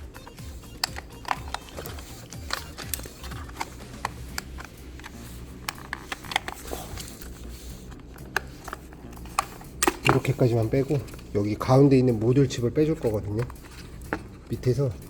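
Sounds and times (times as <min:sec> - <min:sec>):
plastic trim clicking and creaking: 0:00.2 - 0:07.3, 0:08.0 - 0:11.3.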